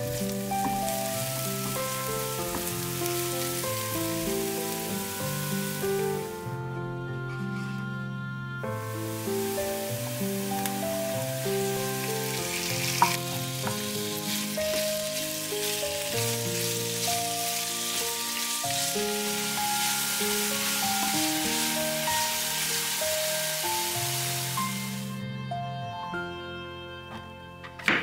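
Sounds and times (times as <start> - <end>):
food sizzling in a frying pan: 0.0 - 6.4, 8.8 - 25.1
wooden spatula stirring: 0.0 - 6.4, 9.0 - 25.0
background music: 0.0 - 28.0.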